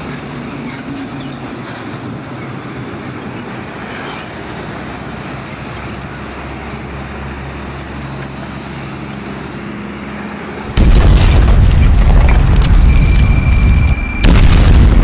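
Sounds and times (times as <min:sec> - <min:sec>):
traffic noise: 0:00.0 - 0:15.0
truck engine: 0:00.0 - 0:15.0
loud rumbling boom: 0:10.7 - 0:15.0.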